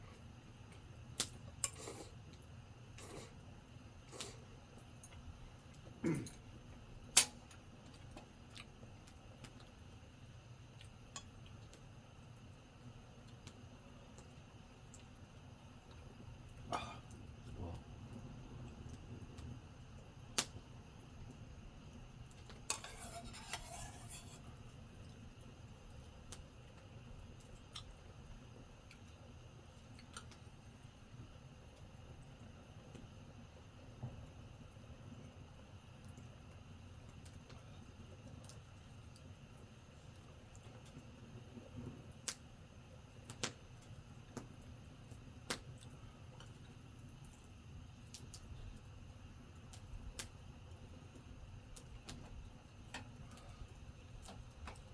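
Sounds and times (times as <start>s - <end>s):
low background hum: 0.0s - 54.9s
campfire wood popping: 7.1s - 9.7s, 16.4s - 21.4s, 43.1s - 47.4s
tableware clinking: 22.7s - 24.4s.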